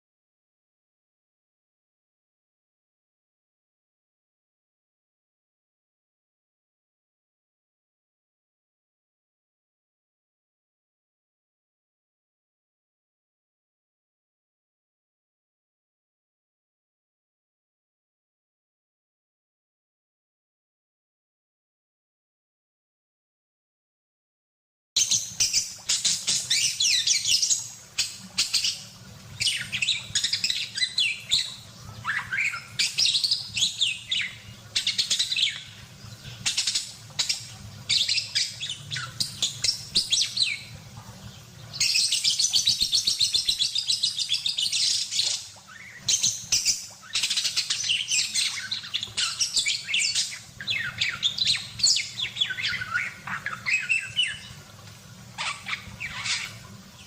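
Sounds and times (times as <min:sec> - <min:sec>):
budgerigar warbling: 0:29.5 - 0:33.0, 0:55.4 - 0:56.6.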